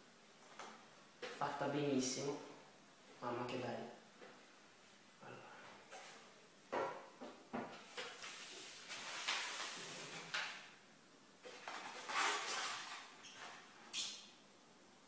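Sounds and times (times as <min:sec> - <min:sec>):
packaging rustling and scraping: 0:07.9 - 0:10.7, 0:11.4 - 0:14.0.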